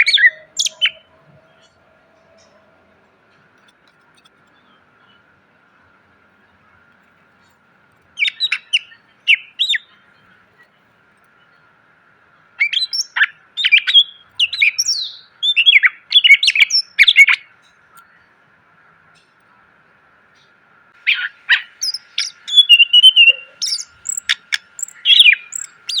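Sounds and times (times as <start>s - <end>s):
bird singing quick sharp notes: 21.5s - 26.0s.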